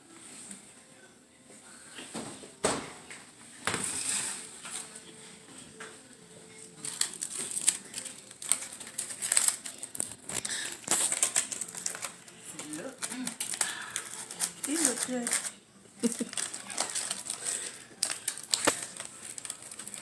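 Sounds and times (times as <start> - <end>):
foil packets crinkling: 6.6 - 20.0.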